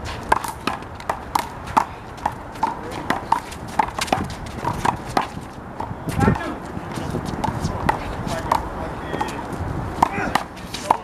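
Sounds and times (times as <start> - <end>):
handball smacks and bounces: 10.0 - 11.0.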